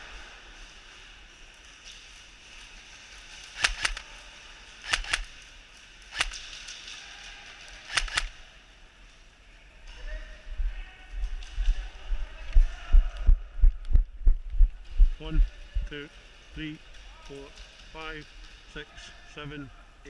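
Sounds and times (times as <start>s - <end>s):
airsoft gun shots: 3.6s - 4.0s, 4.8s - 5.3s, 6.1s - 6.4s, 7.9s - 8.4s.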